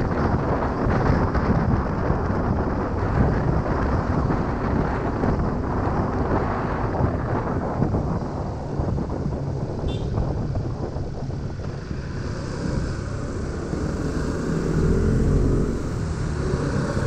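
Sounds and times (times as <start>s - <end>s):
road noise: 0.0s - 17.0s
wind buffeting microphone: 0.0s - 17.0s
motorcycle engine: 9.7s - 17.0s.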